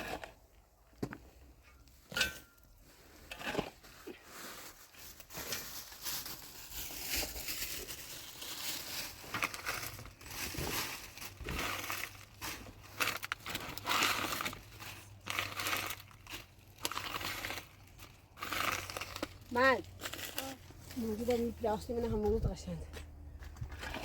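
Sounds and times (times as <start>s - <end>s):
plastic sheeting crinkling: 4.2s - 21.4s.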